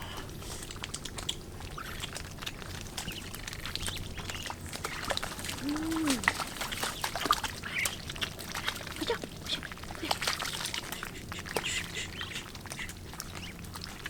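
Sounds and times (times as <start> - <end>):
shallow water splashing: 0.0 - 14.0
duck calling: 10.8 - 13.6.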